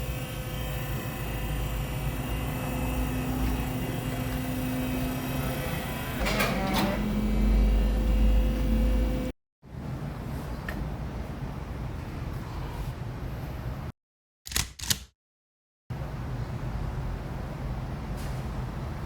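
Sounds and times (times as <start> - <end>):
machine hum with low rumble: 0.0 - 12.4.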